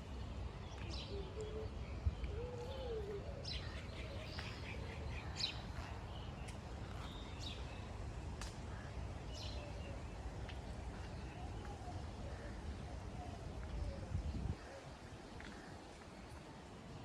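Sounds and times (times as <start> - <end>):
wind rumble on microphone: 10.8 - 16.9.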